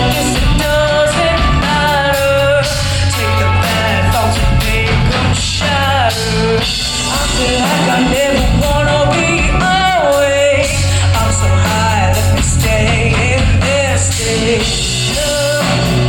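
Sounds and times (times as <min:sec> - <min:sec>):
person singing: 0:00.0 - 0:16.0
rock band playing: 0:00.0 - 0:16.0.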